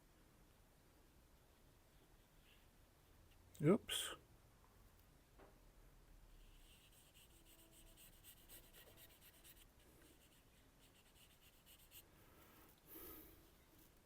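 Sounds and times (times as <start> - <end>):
marker pen scratching on steel: 6.6 - 12.0.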